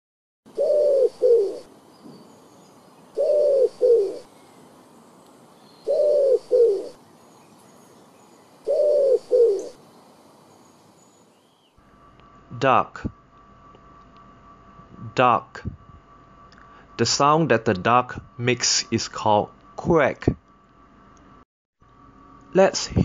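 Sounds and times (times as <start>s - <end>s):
dove cooing: 0.5s - 4.7s, 5.7s - 7.0s, 8.3s - 9.9s.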